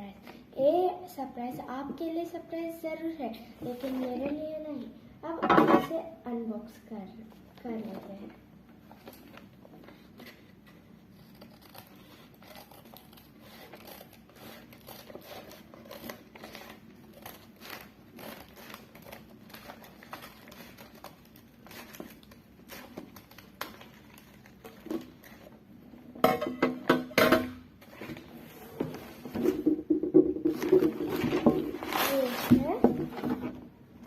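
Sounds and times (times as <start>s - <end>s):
plastic and paper crinkling: 8.8s - 25.7s, 30.4s - 33.5s.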